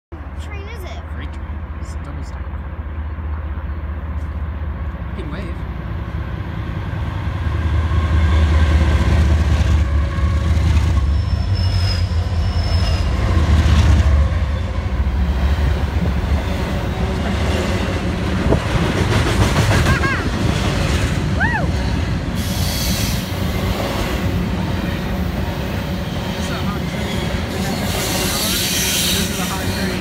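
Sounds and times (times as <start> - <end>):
diesel locomotive engine rumble: 0.1 - 30.0
high wheel squeal: 9.8 - 13.4, 21.5 - 23.4, 26.4 - 30.0.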